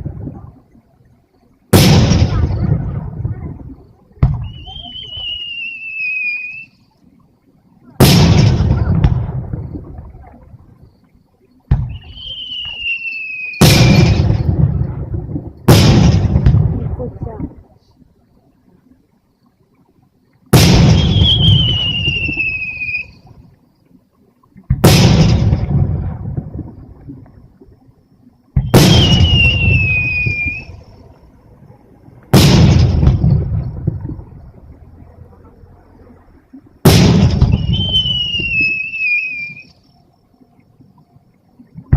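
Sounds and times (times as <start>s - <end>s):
sharp firework crack: 1.7s - 3.1s, 8.0s - 9.6s, 11.7s - 15.0s, 15.6s - 16.9s, 20.5s - 23.1s, 24.7s - 26.4s, 28.6s - 30.8s, 32.3s - 34.0s, 36.8s - 39.0s
firework bang: 1.7s - 3.4s, 8.0s - 9.8s, 11.7s - 12.9s, 13.6s - 17.0s, 20.5s - 22.6s, 24.7s - 26.6s, 28.6s - 30.8s, 32.3s - 34.2s, 36.8s - 38.8s
firework boom with rumble: 1.7s - 5.4s, 8.0s - 10.2s, 11.7s - 12.9s, 13.6s - 17.4s, 20.5s - 23.0s, 24.7s - 27.2s, 28.5s - 30.8s, 32.3s - 34.7s, 36.8s - 38.9s
firework whistle: 4.3s - 6.9s, 11.8s - 14.5s, 20.6s - 23.4s, 28.6s - 31.0s, 36.8s - 39.9s.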